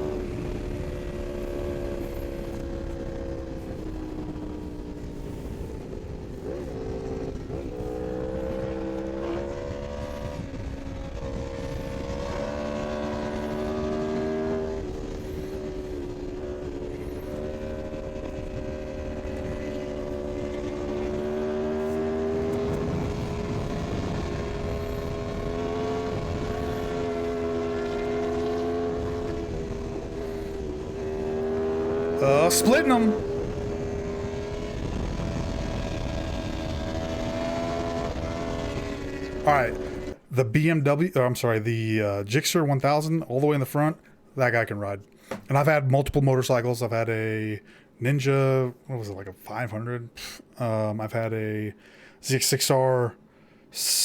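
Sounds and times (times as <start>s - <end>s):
motorcycle engine at high revs: 0.0s - 40.2s
wind rush: 0.0s - 40.2s.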